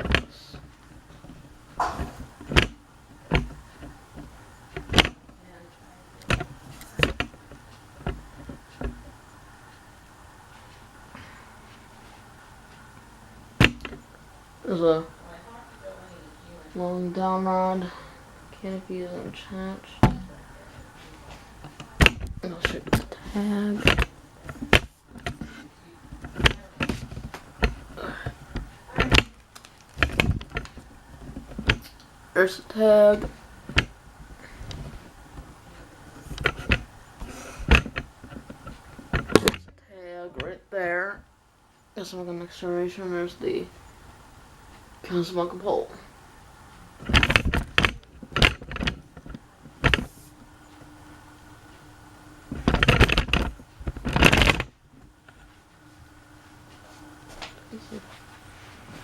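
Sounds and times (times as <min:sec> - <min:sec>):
handling knocks and clunks: 0:00.0 - 0:05.5, 0:06.2 - 0:09.2, 0:13.5 - 0:14.2, 0:18.6 - 0:32.1, 0:32.8 - 0:40.6, 0:47.0 - 0:50.2, 0:52.5 - 0:55.4.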